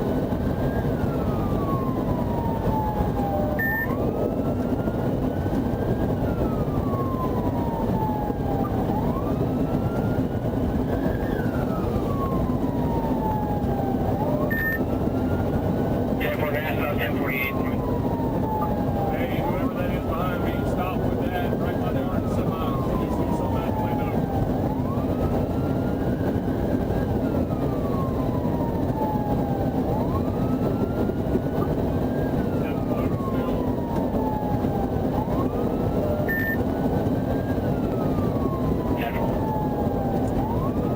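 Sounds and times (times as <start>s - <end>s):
car engine and road noise: 0.0s - 40.9s
police siren wailing: 0.0s - 40.9s
short beep: 3.6s - 3.9s, 14.5s - 14.8s, 36.3s - 36.6s.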